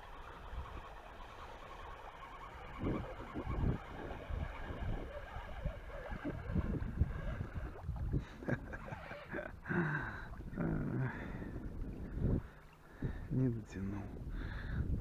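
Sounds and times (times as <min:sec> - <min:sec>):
wind on microphone: 0:00.0 - 0:15.0
water splashing: 0:00.1 - 0:13.0.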